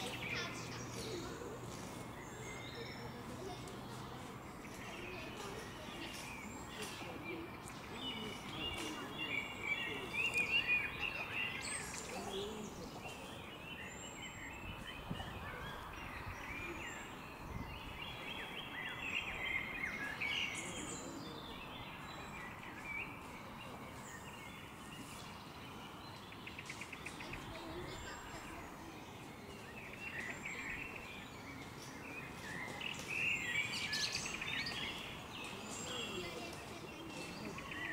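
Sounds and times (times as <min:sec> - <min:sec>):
outdoor background hiss: 0:00.0 - 0:37.9
songbirds chirping and warbling: 0:00.0 - 0:37.9.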